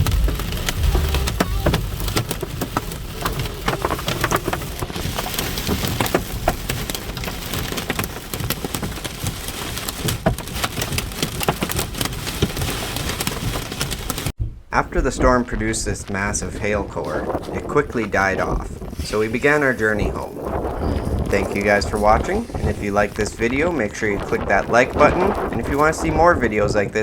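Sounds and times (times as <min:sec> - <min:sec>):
low rumble: 0:00.0 - 0:06.4
hail and rain pelting: 0:00.0 - 0:27.0.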